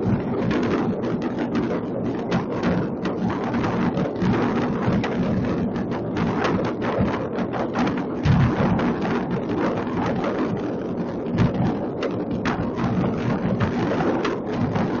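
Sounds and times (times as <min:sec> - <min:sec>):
continuous rumble: 0:00.0 - 0:15.0
fireworks bangs and crackles: 0:00.0 - 0:15.0
heavy firework booms: 0:08.2 - 0:09.5.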